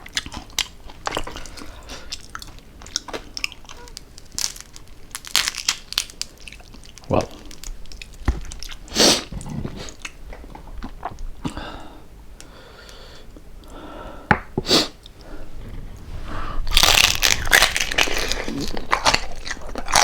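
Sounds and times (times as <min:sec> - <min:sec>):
crunchy chewing: 0:00.0 - 0:11.6, 0:14.9 - 0:20.0.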